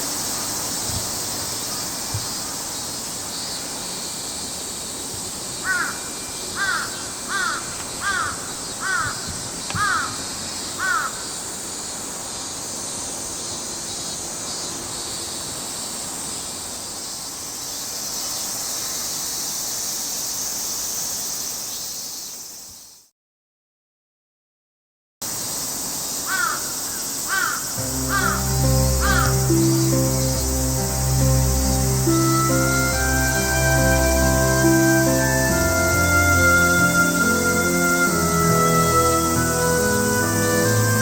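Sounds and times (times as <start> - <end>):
steady high outdoor hiss: 0.0 - 23.1, 25.2 - 41.0
crow cawing: 5.6 - 11.3, 26.3 - 29.6.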